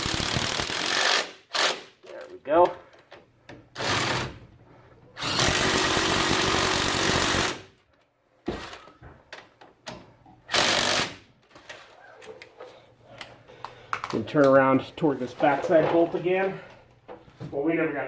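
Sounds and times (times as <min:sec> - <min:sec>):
power tool driving bolt: 0:10.5 - 0:11.2.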